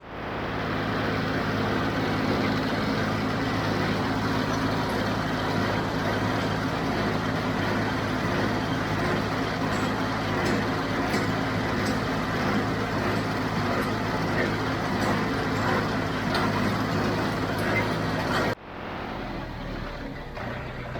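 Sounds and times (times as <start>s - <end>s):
diesel tractor engine running: 0.0s - 20.9s.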